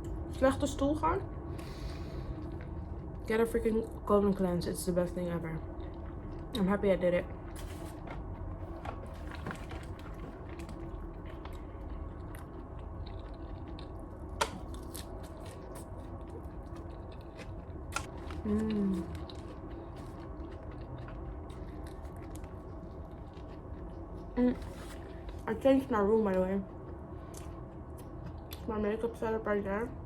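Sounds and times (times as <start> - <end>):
person chewing food: 7.5 - 25.4, 26.8 - 28.7.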